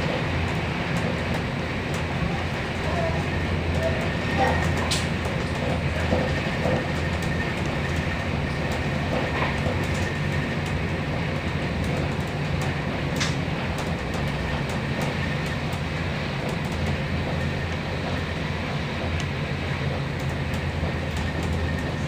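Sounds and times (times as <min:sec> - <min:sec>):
train rumble from inside carriage: 0:00.0 - 0:22.0.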